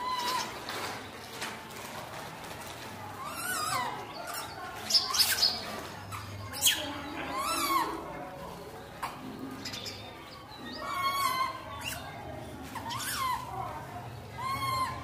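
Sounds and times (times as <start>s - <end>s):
birds chirping and whistling: 0.0s - 0.9s, 3.2s - 8.0s, 9.5s - 13.5s, 14.2s - 15.0s.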